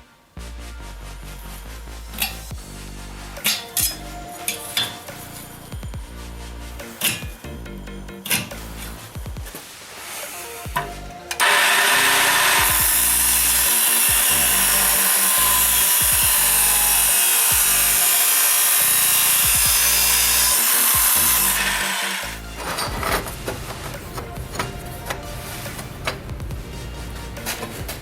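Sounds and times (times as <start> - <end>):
background music: 0.0 - 28.0
power tool working steel: 10.1 - 26.3.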